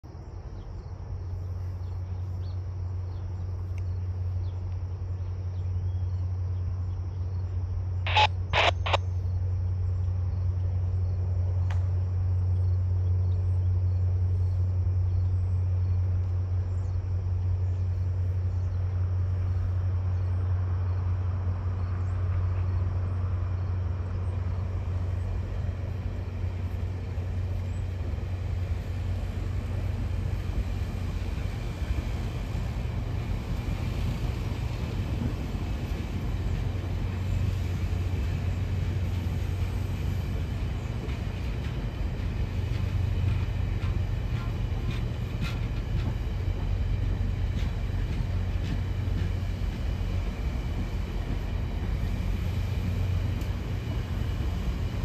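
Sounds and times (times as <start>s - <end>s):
diesel locomotive drone: 0.0s - 55.0s
crickets buzzing: 0.1s - 55.0s
rush of train wheels: 21.8s - 55.0s.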